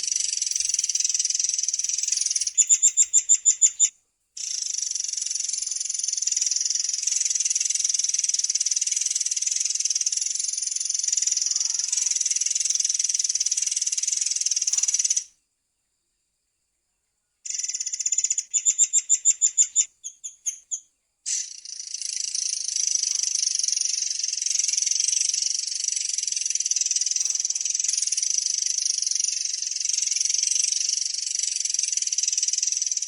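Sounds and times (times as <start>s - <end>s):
songbird high-pitched trill: 0.0s - 7.9s, 17.5s - 33.0s.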